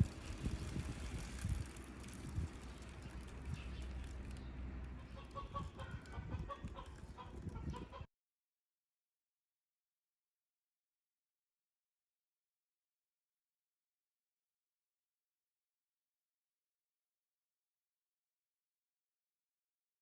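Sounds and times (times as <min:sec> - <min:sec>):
chickens clucking: 0:05.0 - 0:08.1.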